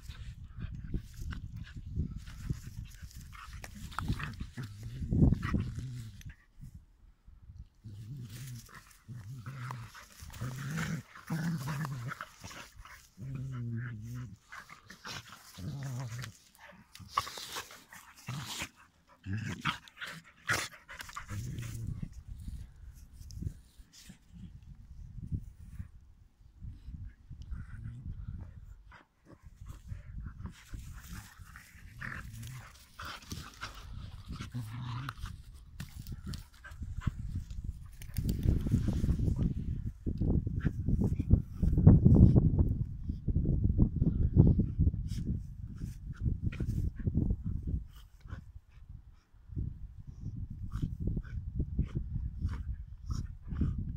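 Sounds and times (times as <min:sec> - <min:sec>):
dogs growling: 0:07.8 - 0:22.7, 0:27.4 - 0:39.5.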